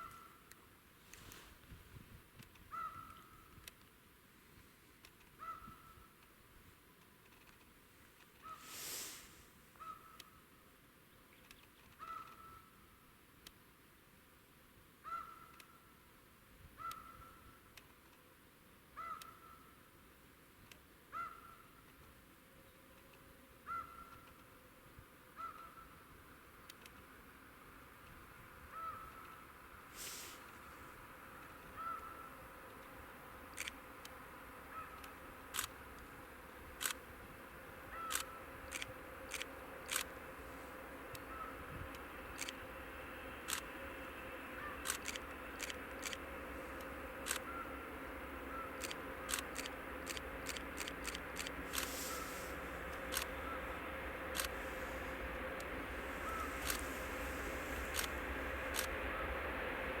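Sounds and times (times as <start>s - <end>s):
faint steady hum: 0.0s - 60.0s
short sharp bird calls: 2.7s - 3.5s, 5.4s - 6.1s, 8.4s - 10.4s, 12.0s - 12.8s, 15.0s - 15.8s, 19.0s - 19.8s, 23.6s - 24.3s, 25.4s - 26.0s, 28.7s - 30.7s, 31.7s - 32.4s, 37.9s - 38.5s, 41.2s - 41.6s, 47.3s - 47.8s, 51.7s - 55.2s, 55.9s - 58.1s
bird hoarse call: 5.4s - 6.1s, 23.6s - 24.2s, 25.4s - 26.0s, 31.7s - 32.4s, 37.9s - 40.0s, 41.2s - 41.7s, 43.5s - 59.4s.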